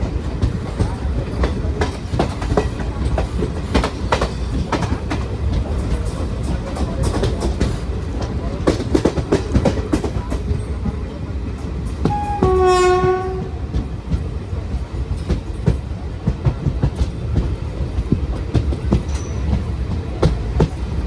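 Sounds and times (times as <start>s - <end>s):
train rumbling: 0.0s - 21.0s
wheels clacking over rail joints: 0.0s - 21.0s
locomotive horn: 12.0s - 13.7s.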